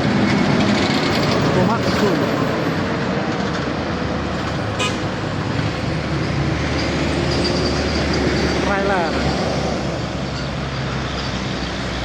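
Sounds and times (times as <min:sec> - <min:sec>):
road traffic: 0:00.0 - 0:12.0
truck engine under load: 0:00.0 - 0:12.0.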